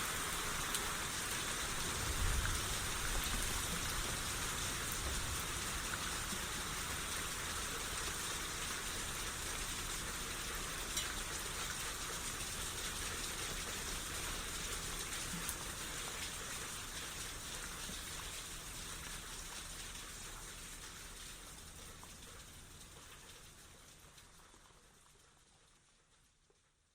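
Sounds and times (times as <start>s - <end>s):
rain shower hissing: 0.0s - 25.2s.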